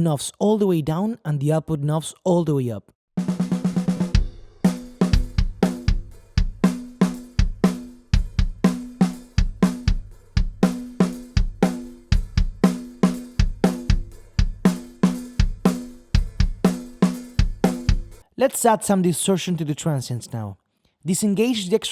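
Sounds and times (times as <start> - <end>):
kick drum: 5.2 - 6.7, 7.4 - 8.7, 9.4 - 10.7, 11.4 - 12.7, 13.4 - 14.7, 15.4 - 16.7.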